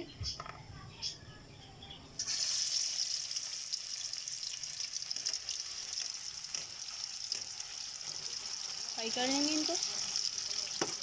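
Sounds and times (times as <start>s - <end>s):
potato strips sizzling in hot oil: 2.1s - 11.0s.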